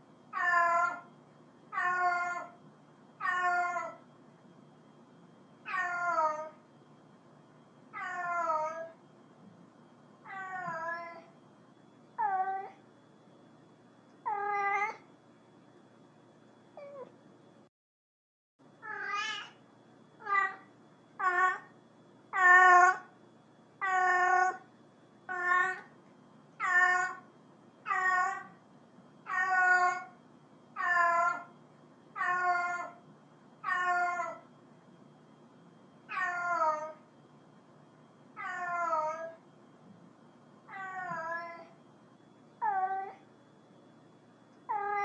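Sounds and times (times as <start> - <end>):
cat meowing: 1.8 - 2.6, 3.2 - 4.0, 5.7 - 6.6, 8.0 - 9.0, 10.3 - 11.3, 14.3 - 15.0, 18.8 - 19.6, 20.2 - 21.7, 22.3 - 23.1, 23.8 - 24.6, 25.3 - 25.9, 26.6 - 27.2, 27.9 - 28.5, 29.3 - 30.1, 32.2 - 33.0, 33.6 - 34.4, 36.1 - 37.0, 38.4 - 39.4, 40.7 - 41.7, 42.6 - 43.2, 44.7 - 45.0.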